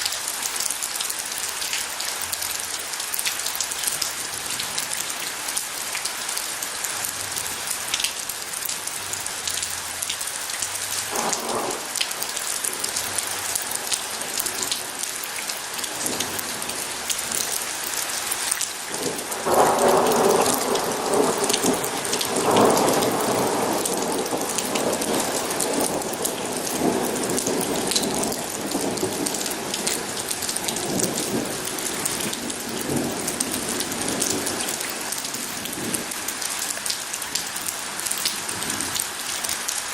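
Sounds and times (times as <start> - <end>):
heavy rain: 0.0 - 39.9
thunder rumbling: 11.1 - 15.0, 18.9 - 36.4.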